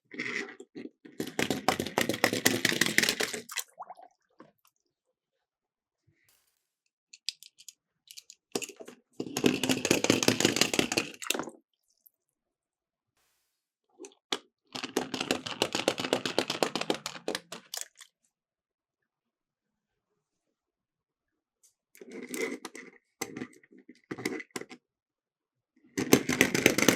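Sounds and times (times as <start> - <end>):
toy cars rattling down plastic slope: 0.1 - 3.5, 7.2 - 11.5, 14.8 - 18.0, 26.0 - 26.9.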